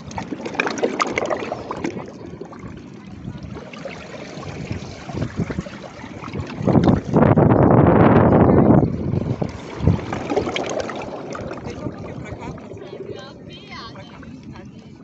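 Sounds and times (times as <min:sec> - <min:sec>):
small splashes: 0:00.0 - 0:07.2, 0:09.3 - 0:13.3
water trickling among rocks: 0:09.2 - 0:14.6.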